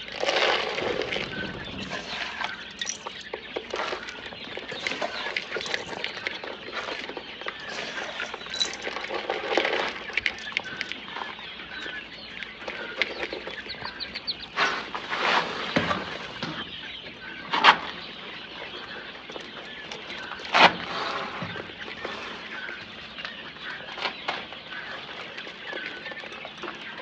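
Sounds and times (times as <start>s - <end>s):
wings flapping: 0.0s - 10.9s
chickens clucking: 0.0s - 27.0s.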